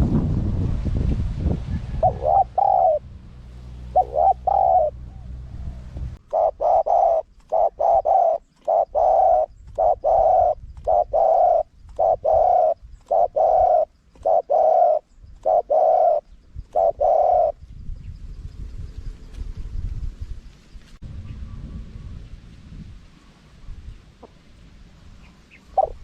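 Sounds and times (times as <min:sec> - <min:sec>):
low rumbling noise: 0:00.0 - 0:06.9, 0:21.0 - 0:26.0
dove cooing: 0:01.9 - 0:03.0, 0:03.8 - 0:17.6, 0:25.2 - 0:26.0.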